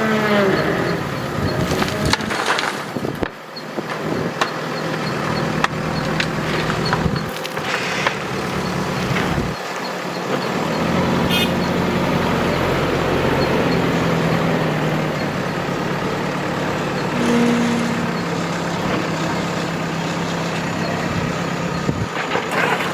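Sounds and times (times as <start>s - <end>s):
heavy diesel engine under load: 0.0s - 22.9s
high squeak: 15.2s - 22.9s.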